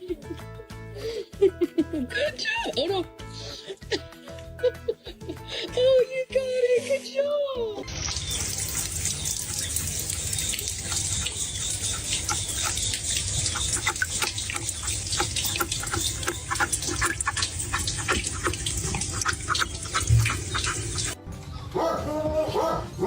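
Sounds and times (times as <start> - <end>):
water running and splashing: 7.8 - 21.2.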